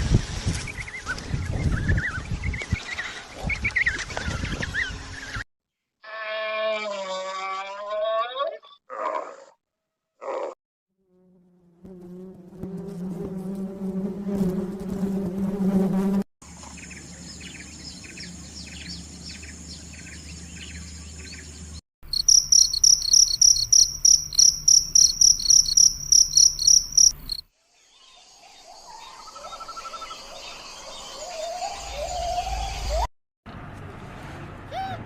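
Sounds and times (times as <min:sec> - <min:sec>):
insect buzzing: 0:11.0 - 0:16.2, 0:22.0 - 0:27.4
crickets chirping: 0:22.0 - 0:27.4
high insect trill: 0:22.0 - 0:27.4
rising insect calls: 0:22.1 - 0:27.4.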